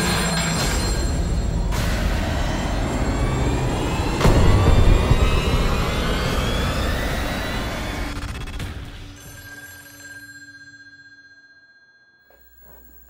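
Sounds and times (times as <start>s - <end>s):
loud dense rumbling: 2.2s - 8.5s.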